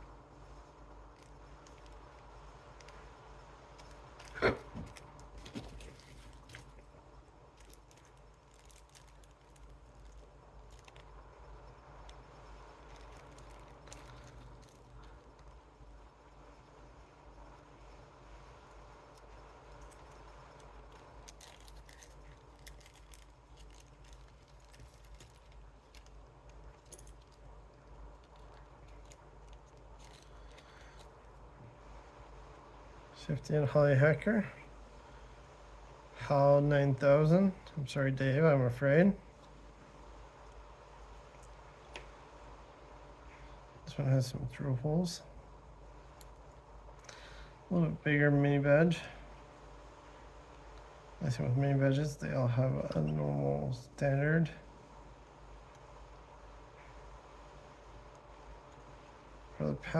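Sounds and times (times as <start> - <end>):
low steady hum: 0.0 - 59.9
small parts and tools clicking: 7.5 - 11.2, 12.8 - 16.1, 19.1 - 31.3.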